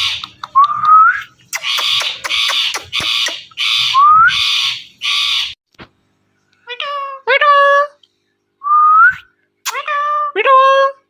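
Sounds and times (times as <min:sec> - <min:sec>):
parrot squawking: 0:00.0 - 0:00.5, 0:01.5 - 0:05.6.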